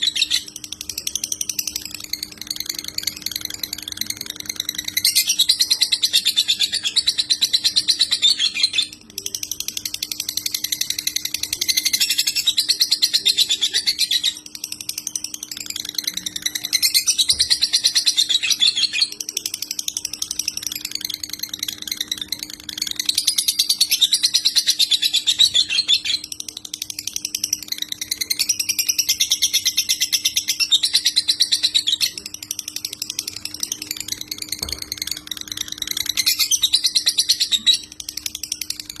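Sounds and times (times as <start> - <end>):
faint low hum: 0.0 - 39.0
lovebird high chirping: 0.0 - 39.0.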